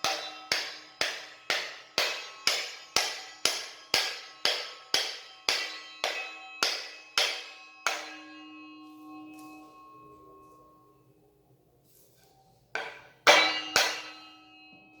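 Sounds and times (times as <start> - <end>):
saw blade ringing: 0.0 - 11.0, 12.8 - 15.0.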